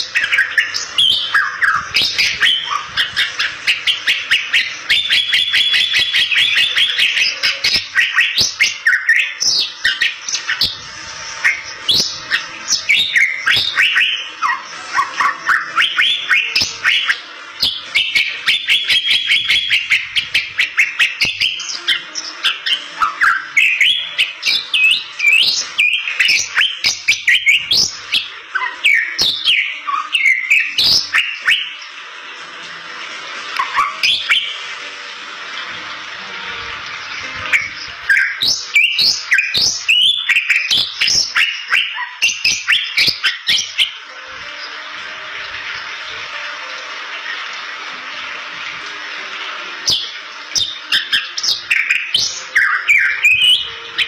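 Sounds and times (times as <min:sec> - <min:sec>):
bird song with whistles and clicks: 0:00.0 - 0:10.8, 0:11.4 - 0:32.0, 0:33.6 - 0:34.6, 0:37.5 - 0:44.0, 0:49.9 - 0:54.0
buzzy bird trill: 0:00.0 - 0:32.0, 0:33.6 - 0:34.7, 0:36.4 - 0:46.2, 0:49.8 - 0:54.0.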